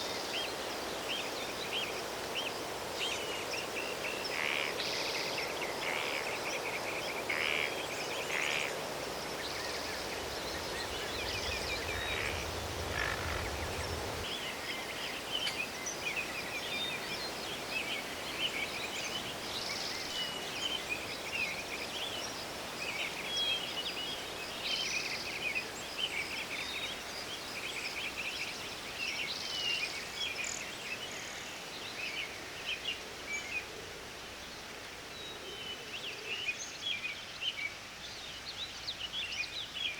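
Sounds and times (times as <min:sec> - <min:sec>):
small birds chirping: 0:00.0 - 0:33.7
steady background hiss: 0:00.0 - 0:39.9
low rumble: 0:10.2 - 0:14.3.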